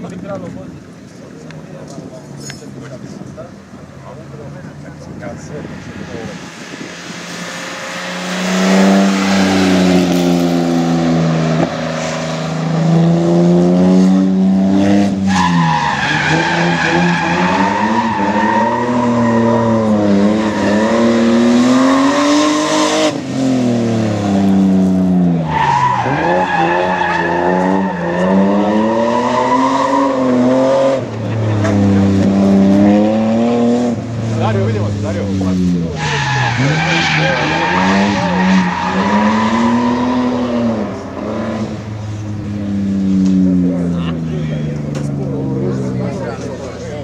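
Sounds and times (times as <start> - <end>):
car engine revving high: 5.1 - 46.4
tyres squealing: 35.9 - 42.2.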